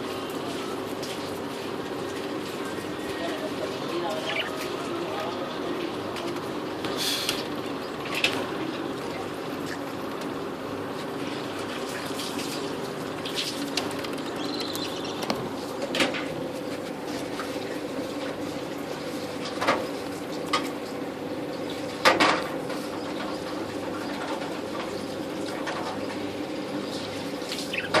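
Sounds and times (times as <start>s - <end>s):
steady hum: 0.0s - 28.0s
budgerigars chirping: 4.1s - 4.7s, 27.7s - 28.0s.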